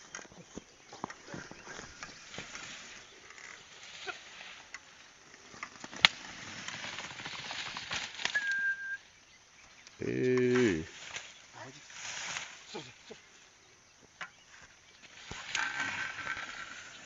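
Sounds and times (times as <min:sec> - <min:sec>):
sharp crack: 0:05.6 - 0:08.5
high whistle: 0:08.3 - 0:09.0.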